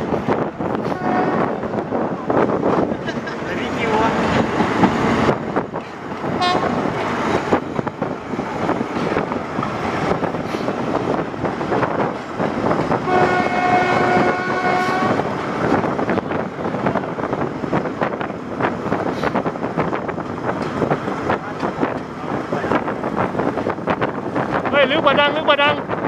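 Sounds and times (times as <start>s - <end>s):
train rumble and rail noise: 0.0s - 26.0s
train horn: 0.8s - 1.6s, 6.4s - 6.8s, 13.0s - 15.3s.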